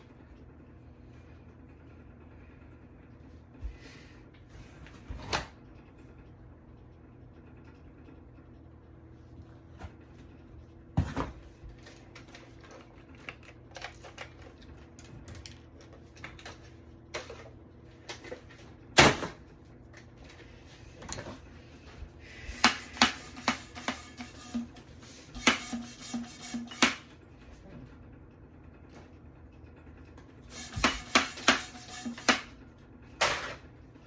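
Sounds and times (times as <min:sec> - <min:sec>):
knocks and clicks of objects handled: 0:22.5 - 0:24.8.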